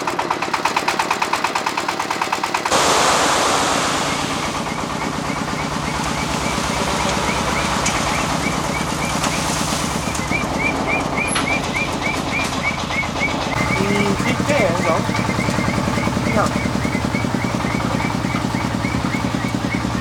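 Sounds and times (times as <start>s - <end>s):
small engine running: 0.0s - 20.0s
burst of rushing noise: 2.7s - 4.7s.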